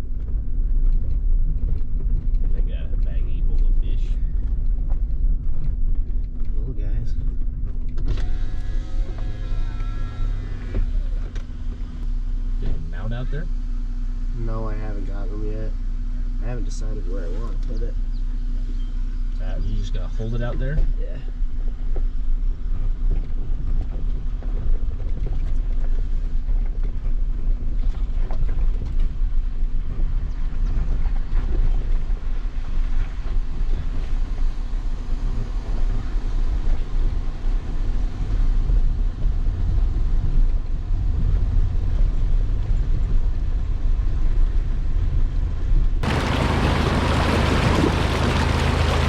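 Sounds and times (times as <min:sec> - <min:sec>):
wind buffeting microphone: 0:38.1 - 0:49.0
rushing water: 0:46.0 - 0:49.0
truck engine rumbling: 0:46.0 - 0:49.0.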